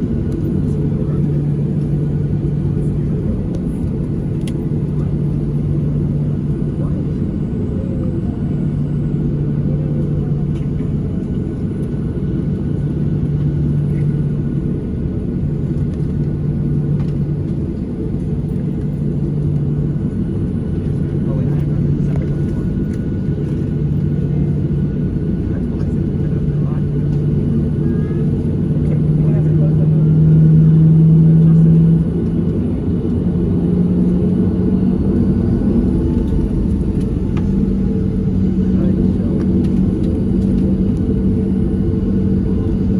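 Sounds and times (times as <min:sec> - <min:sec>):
aircraft cabin engine hum: 0:00.0 - 0:42.9.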